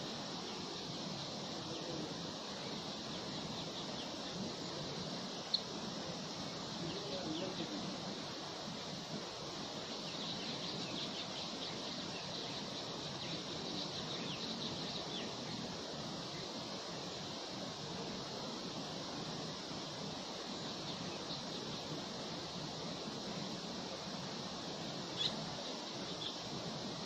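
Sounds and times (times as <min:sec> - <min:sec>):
wind hiss: 0:00.0 - 0:27.0.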